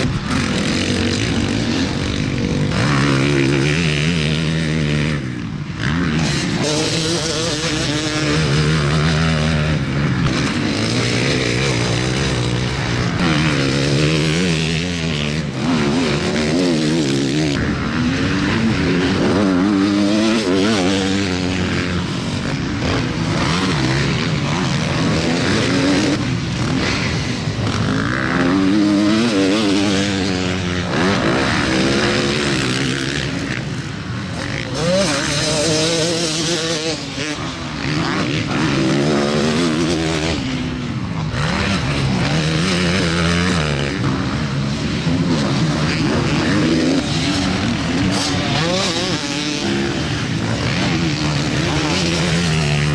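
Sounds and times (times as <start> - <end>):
motocross motorcycles revving: 0.0 - 52.9.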